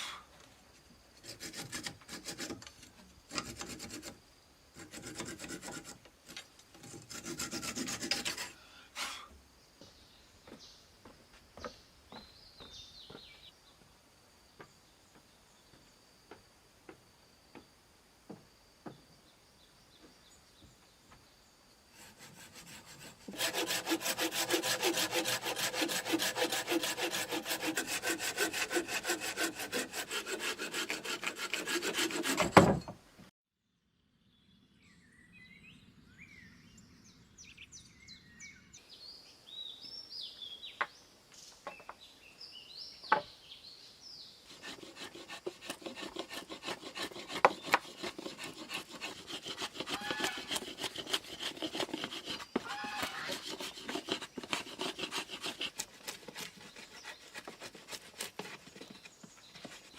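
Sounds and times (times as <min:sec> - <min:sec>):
hand saw cutting wood: 0:01.2 - 0:04.2, 0:04.8 - 0:09.3, 0:22.0 - 0:32.9, 0:44.5 - 0:59.9
birds chirping: 0:09.8 - 0:13.8.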